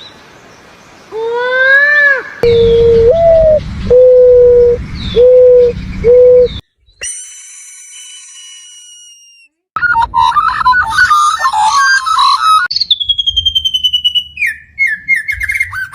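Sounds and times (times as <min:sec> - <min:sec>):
fast warbling chirping: 0:02.4 - 0:06.6
high ringing tone: 0:02.4 - 0:06.6
hooting coos: 0:02.4 - 0:06.6
low rumbling background: 0:02.4 - 0:06.6.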